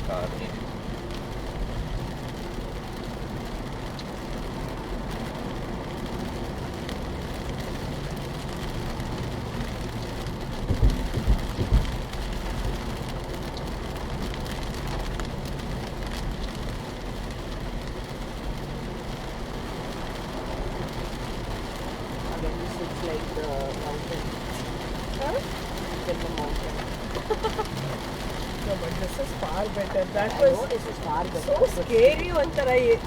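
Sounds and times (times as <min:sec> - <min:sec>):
car engine: 0:00.0 - 0:33.0
rain on car: 0:00.0 - 0:33.0
tyres on wet road: 0:00.0 - 0:33.0
low thumps: 0:10.6 - 0:12.2.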